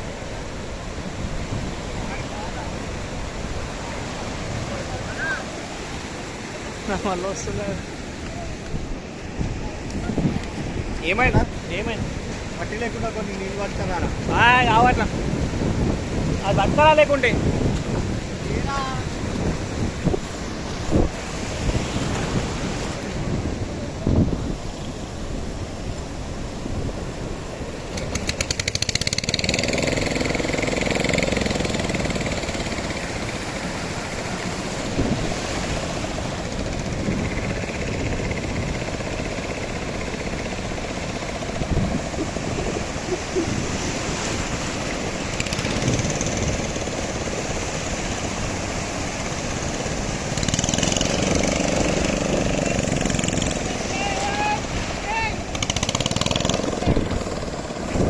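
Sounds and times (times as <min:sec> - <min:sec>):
surf: 0:00.0 - 0:58.0
wind: 0:00.0 - 0:58.0
boat engine running: 0:26.5 - 0:58.0
engine rapid rattle: 0:28.0 - 0:33.2, 0:50.4 - 0:53.6, 0:55.5 - 0:57.8.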